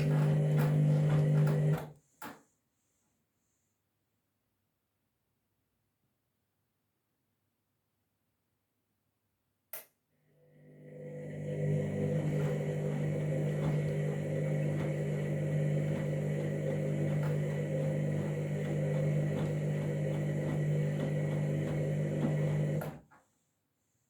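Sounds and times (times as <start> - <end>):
washing machine humming: 0.0 - 1.9, 10.6 - 23.1.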